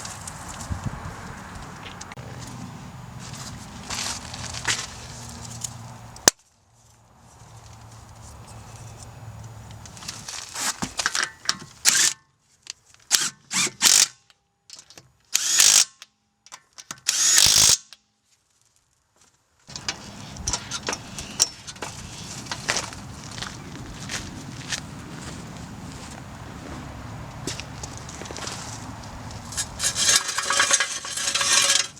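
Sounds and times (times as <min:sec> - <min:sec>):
clinks of tools and parts: 0:10.8 - 0:13.2, 0:14.7 - 0:15.1, 0:29.4 - 0:31.9
impact wrench bursts: 0:15.4 - 0:15.9, 0:17.0 - 0:17.9, 0:29.5 - 0:31.9.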